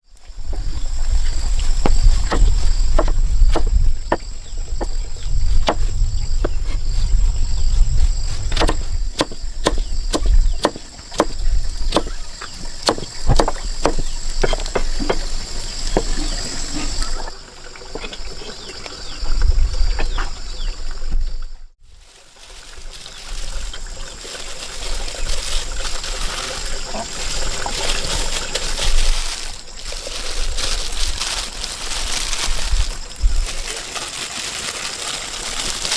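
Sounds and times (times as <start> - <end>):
high insect drone: 0.2 - 21.3.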